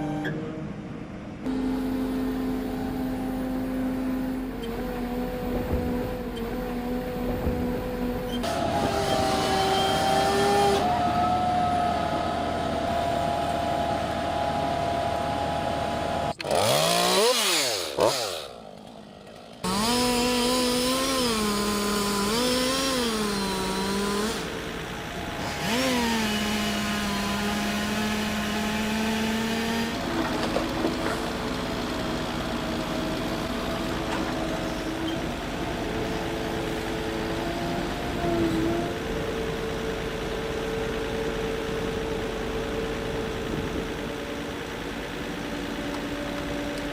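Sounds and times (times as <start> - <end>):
chainsaw engine revving: 4.7 - 11.0, 15.4 - 39.2.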